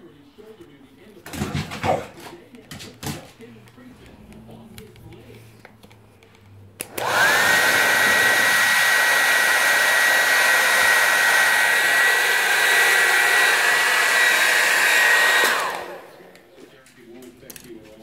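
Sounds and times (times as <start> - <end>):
blow dryer running: 6.8 - 16.4.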